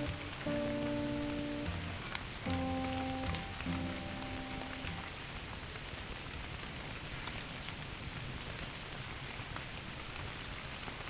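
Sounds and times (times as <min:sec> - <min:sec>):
single drops ticking: 0:00.0 - 0:05.1
steady rain falling: 0:00.0 - 0:11.0.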